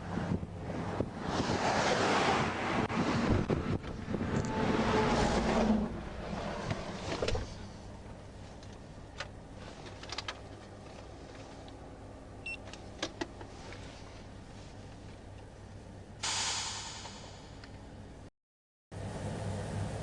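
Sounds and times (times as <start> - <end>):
rushing wind: 0.0 - 8.0
traffic noise: 0.0 - 18.3
vehicle idling hum: 5.9 - 16.2, 19.0 - 20.0.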